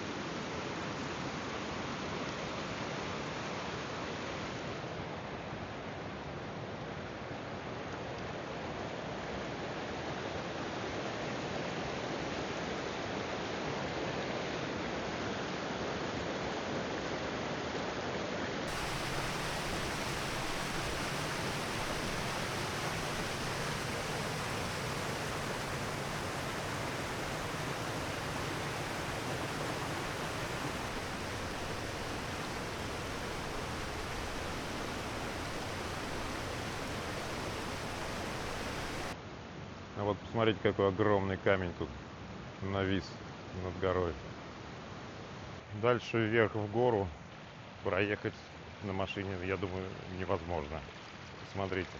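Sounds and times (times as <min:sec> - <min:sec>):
rushing stream water: 0:18.7 - 0:39.2.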